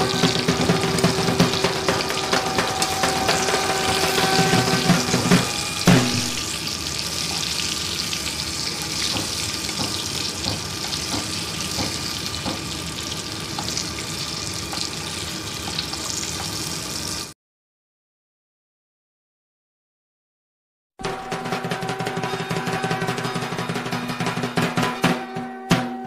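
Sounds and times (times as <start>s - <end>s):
metal spatula knocking on pan: 0.0s - 6.5s, 9.0s - 12.8s
vegetables sizzling in hot oil: 0.0s - 17.3s.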